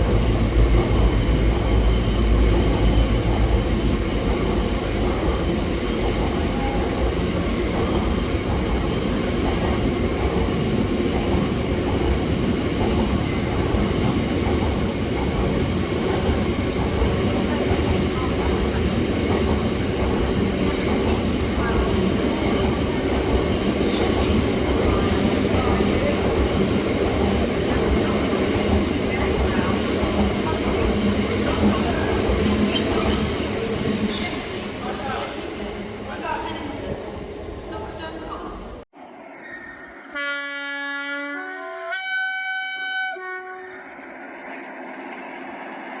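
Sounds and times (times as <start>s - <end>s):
freight train rumbling on rails: 0.0s - 39.0s, 42.4s - 46.0s
locomotive air horn: 40.1s - 44.0s.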